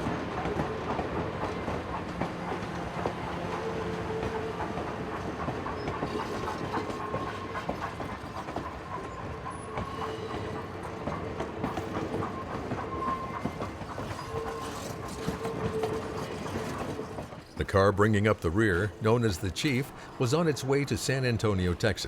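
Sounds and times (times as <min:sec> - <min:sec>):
train wheel squeal: 0:00.0 - 0:17.6
train wheels clicking over rail joints: 0:00.0 - 0:22.0.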